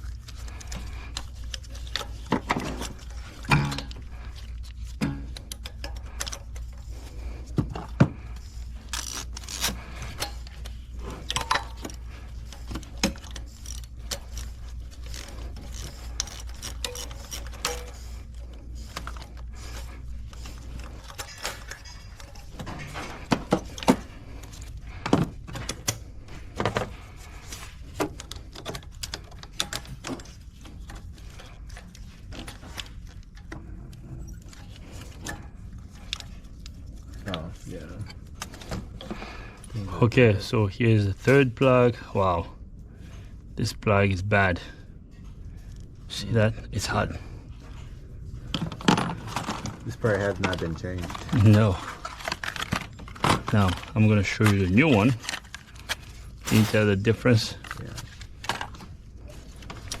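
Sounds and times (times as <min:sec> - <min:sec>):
low steady hum: 0:00.0 - 1:00.0.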